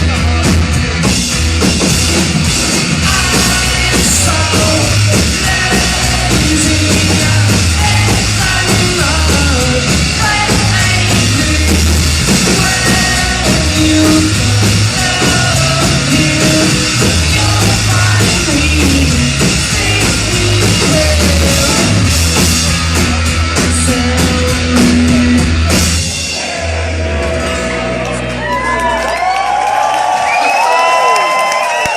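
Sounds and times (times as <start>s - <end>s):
bass guitar: 0.0s - 30.4s
drum kit: 0.0s - 30.9s
person singing: 3.0s - 22.3s.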